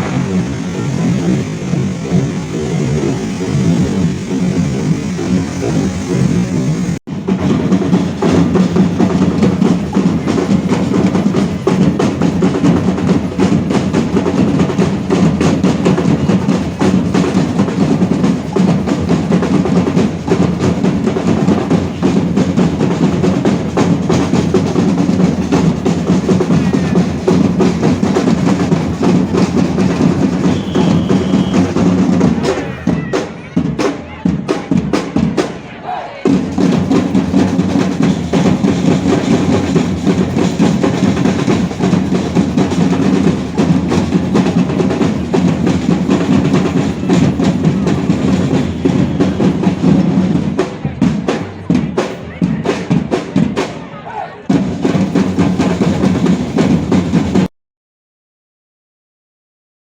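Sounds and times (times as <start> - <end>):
fireworks and firecrackers banging: 0.0 - 13.6, 28.2 - 34.8.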